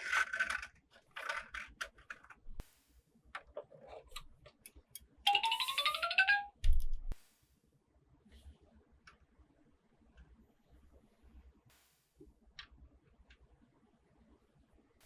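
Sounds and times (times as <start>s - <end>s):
electronic chime jingle: 5.3s - 6.5s.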